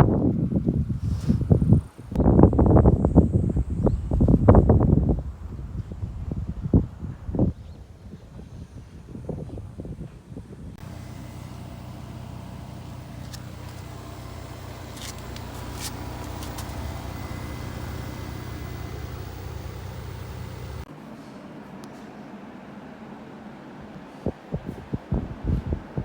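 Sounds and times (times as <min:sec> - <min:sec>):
fan-like hum: 0:00.0 - 0:26.0
motor humming: 0:10.8 - 0:20.9.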